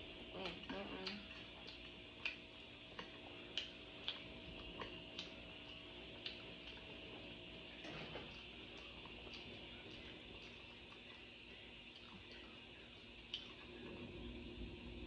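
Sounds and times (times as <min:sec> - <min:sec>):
wet chewing mouth clicks: 0:00.4 - 0:07.3, 0:08.3 - 0:12.6, 0:13.2 - 0:13.8.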